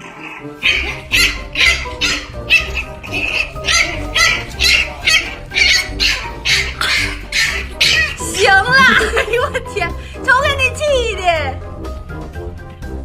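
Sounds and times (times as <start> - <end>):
puppy yapping: 0.0 - 9.0
background music: 0.0 - 13.0.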